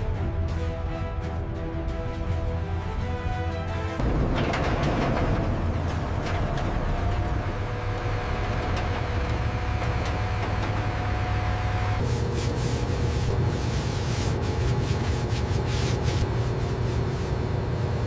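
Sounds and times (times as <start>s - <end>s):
music: 0.0s - 9.6s
clanks and clicks: 4.0s - 11.2s
tracked vehicle engine rumble: 4.0s - 18.0s.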